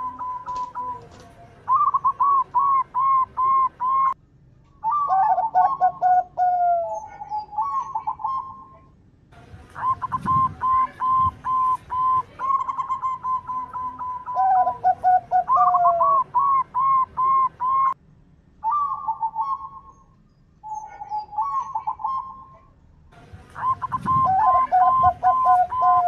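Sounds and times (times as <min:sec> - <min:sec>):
dove cooing: 0:00.0 - 0:04.2, 0:04.8 - 0:08.9, 0:09.8 - 0:18.0, 0:20.6 - 0:22.6, 0:23.5 - 0:26.0.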